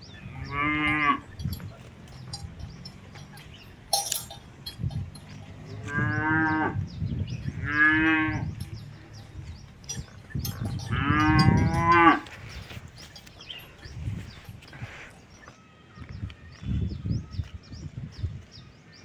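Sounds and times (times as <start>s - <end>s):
calf mooing: 0.4s - 1.3s, 10.9s - 12.2s.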